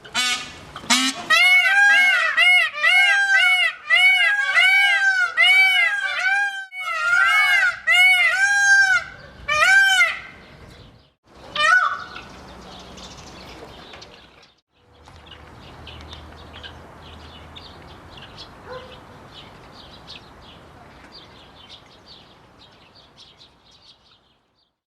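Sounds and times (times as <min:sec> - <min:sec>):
peacock honking calls: 0:00.0 - 0:10.5, 0:11.5 - 0:12.3.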